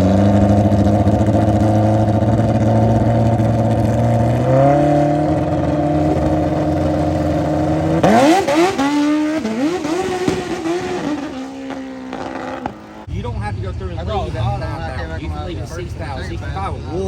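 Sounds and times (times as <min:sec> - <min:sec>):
mini bike engines revving: 0:00.0 - 0:13.1.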